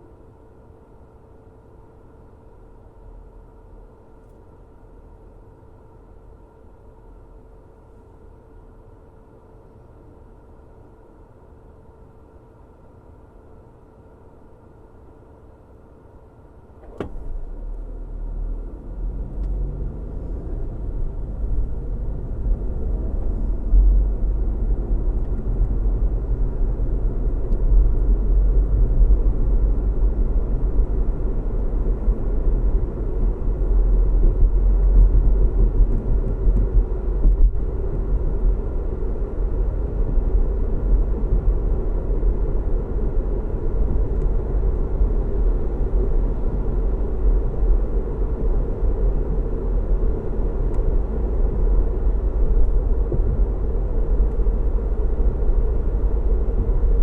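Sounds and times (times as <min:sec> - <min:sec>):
car road noise and engine hum: 0:14.2 - 0:57.0.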